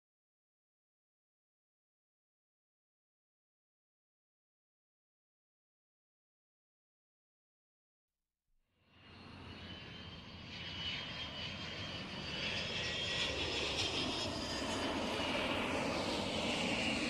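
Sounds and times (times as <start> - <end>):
airliner engine whine: 8.8 - 17.0.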